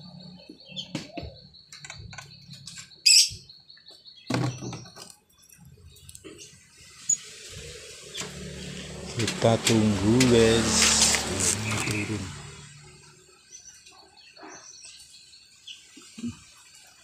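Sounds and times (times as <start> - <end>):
starling chirps and clicks: 0.0 - 7.3.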